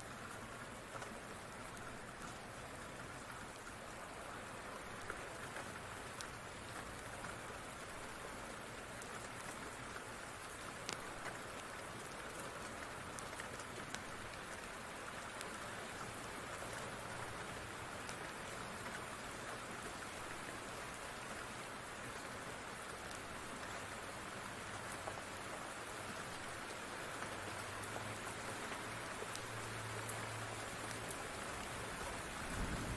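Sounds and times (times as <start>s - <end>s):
steady rain: 0.0s - 32.9s.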